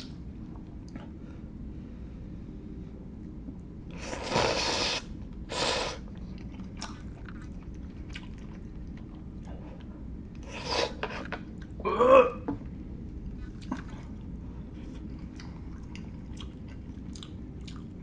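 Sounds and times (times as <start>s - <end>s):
chewing with small clicks: 6.1s - 10.4s, 13.5s - 14.3s, 14.9s - 18.0s.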